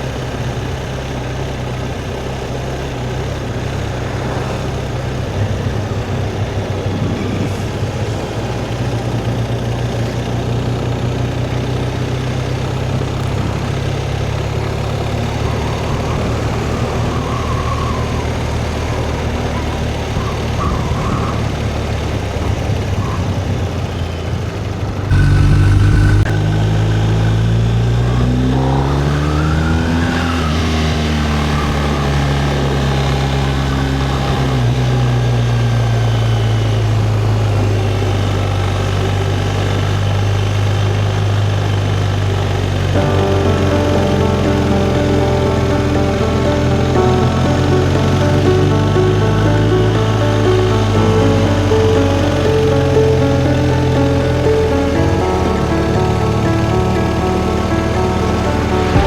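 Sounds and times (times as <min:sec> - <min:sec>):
wind and road noise: 0:00.0 - 0:26.8
motorcycle engine running: 0:25.1 - 0:27.9, 0:37.6 - 0:59.0.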